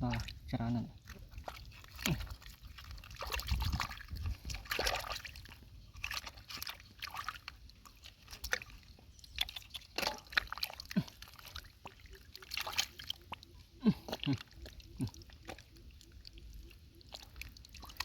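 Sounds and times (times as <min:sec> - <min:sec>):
water sloshing and splashing: 0:00.0 - 0:18.0
hands digging through wet mud: 0:01.1 - 0:13.4.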